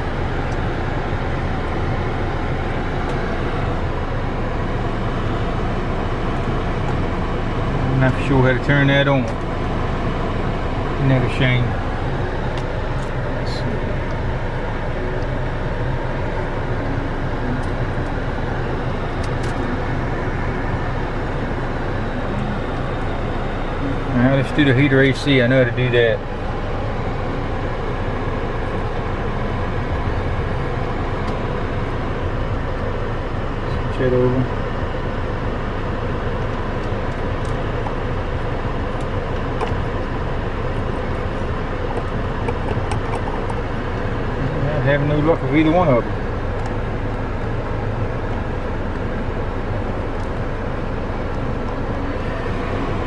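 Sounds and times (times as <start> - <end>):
faint engine ticks: 0.0 - 1.0
car engine idling: 0.0 - 53.0.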